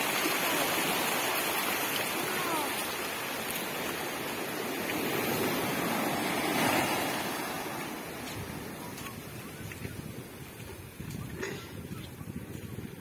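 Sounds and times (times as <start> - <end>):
ocean surf breaking: 0.0 - 9.6.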